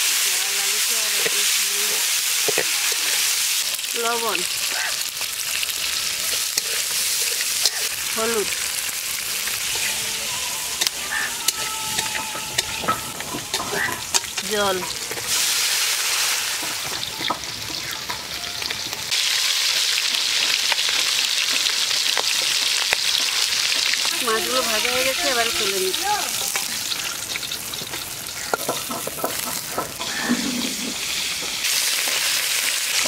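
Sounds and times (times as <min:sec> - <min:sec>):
oil sizzling in a wok: 0:00.0 - 0:33.0
metal spatula scraping a pan: 0:04.5 - 0:18.2, 0:26.4 - 0:31.1.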